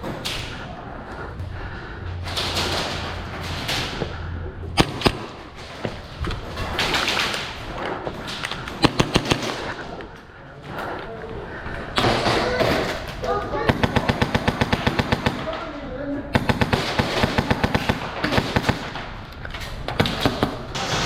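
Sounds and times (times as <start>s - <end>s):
airsoft gun shots: 4.8s - 5.4s, 8.4s - 9.8s.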